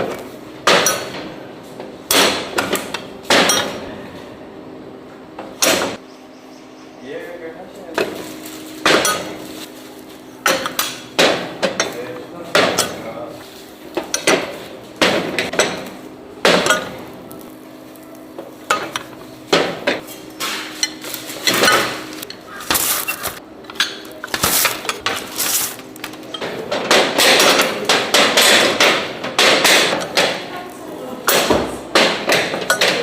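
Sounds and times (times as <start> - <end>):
metal kitchenware clattering: 0.0 - 1.4, 2.1 - 4.0, 8.0 - 9.6, 10.4 - 13.4, 14.0 - 17.5, 18.6 - 30.7, 31.3 - 33.0.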